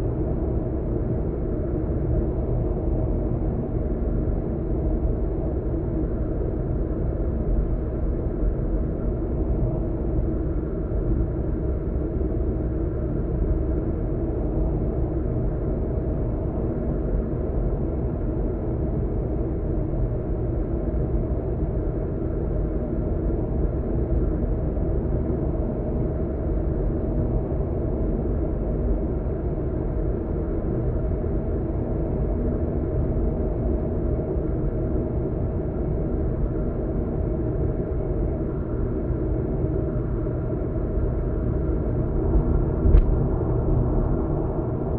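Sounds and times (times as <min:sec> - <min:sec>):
engine drone: 0:39.8 - 0:44.9.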